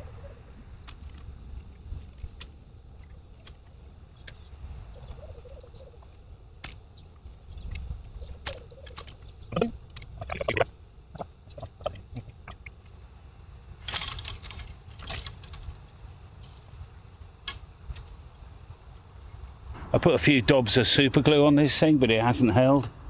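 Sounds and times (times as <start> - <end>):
clicks and knocks handling metal parts: 0.8 - 10.5, 11.2 - 13.1, 13.8 - 19.9
clattering: 13.8 - 16.7.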